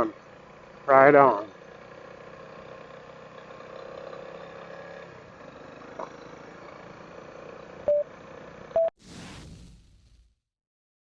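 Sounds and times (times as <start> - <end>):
motorcycle engine idling: 0.1 - 8.7
short electronic beeps: 7.9 - 8.1
brief hiss: 9.0 - 10.4.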